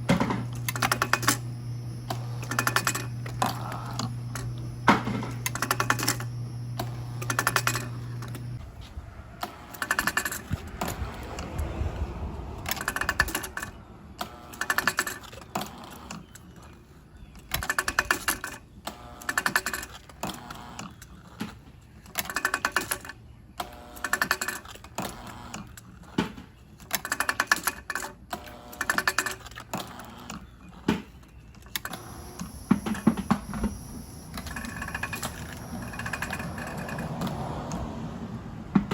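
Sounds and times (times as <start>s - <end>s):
engine clattering with rapid clicks: 0.0s - 8.6s, 9.4s - 16.4s, 31.7s - 38.9s
steady low hum: 0.0s - 9.4s, 31.8s - 38.9s.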